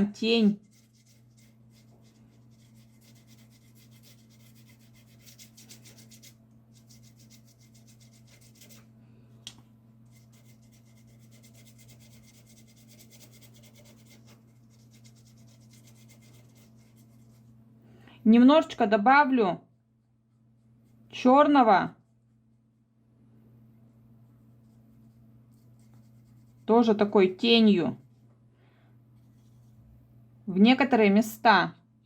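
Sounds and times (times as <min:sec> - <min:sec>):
steady low hum: 0:00.0 - 0:32.0
paintbrush scratching on paper: 0:00.2 - 0:08.8, 0:10.0 - 0:17.6, 0:24.6 - 0:27.0.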